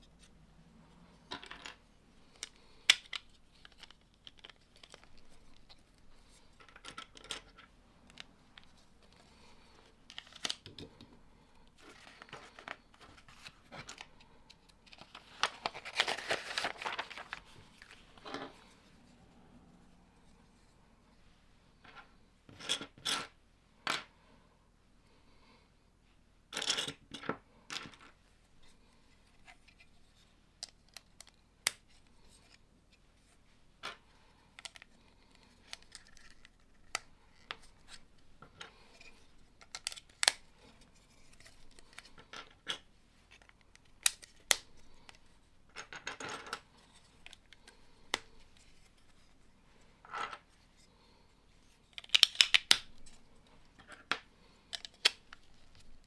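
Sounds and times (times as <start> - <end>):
plastic bricks rustling: 14.8 - 18.6
plastic bricks clicking: 52.0 - 52.9.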